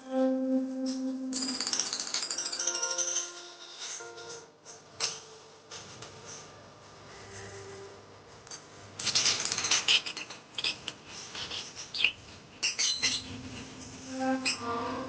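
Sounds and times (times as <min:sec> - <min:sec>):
pet birds chirping: 0:09.9 - 0:13.4.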